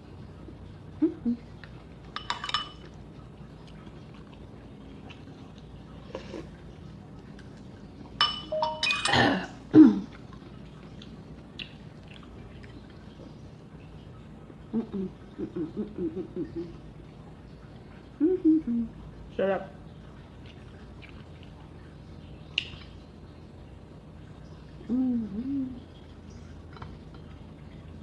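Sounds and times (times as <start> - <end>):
cutlery clinking on dishes: 2.2 - 3.0, 8.2 - 9.5.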